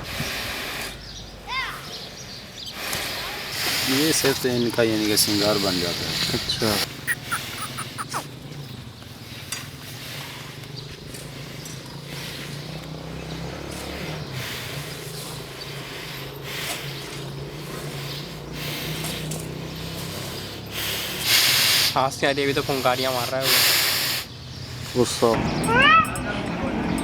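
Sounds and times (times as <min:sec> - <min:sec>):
bull snorting: 0:06.2 - 0:08.3, 0:16.2 - 0:21.6.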